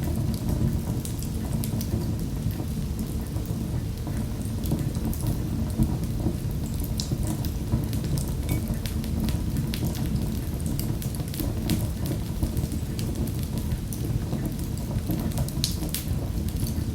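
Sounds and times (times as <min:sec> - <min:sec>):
flames rumbling: 0:00.0 - 0:16.9
wood fire pops and snaps: 0:14.8 - 0:16.8.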